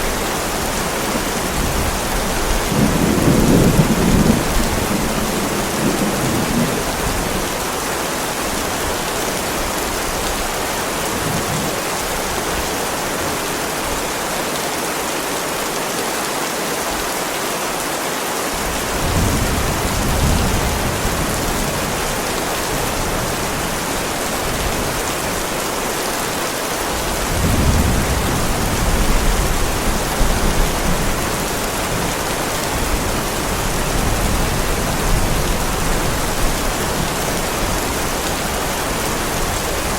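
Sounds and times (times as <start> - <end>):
heavy rain on pavement: 0.0 - 39.9
distant thunder rumbling: 1.4 - 7.5.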